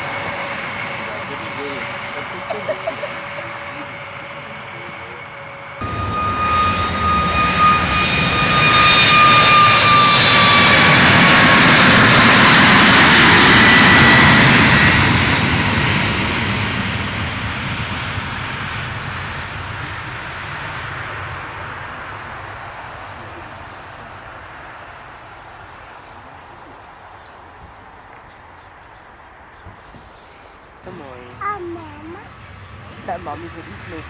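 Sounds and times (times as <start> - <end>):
jet airliner passing: 0.0 - 34.0.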